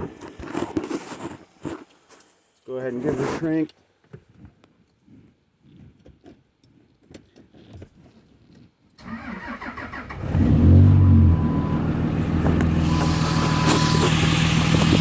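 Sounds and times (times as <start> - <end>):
starter motor cranking: 9.0 - 10.8
diesel engine idling: 9.0 - 15.0.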